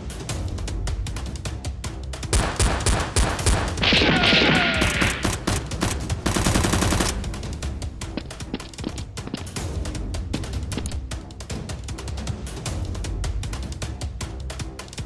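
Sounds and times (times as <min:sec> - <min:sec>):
background music with steady beat: 0:00.0 - 0:15.0
gunfire sound effects: 0:02.4 - 0:07.3
machine-gun rattle: 0:04.8 - 0:07.4.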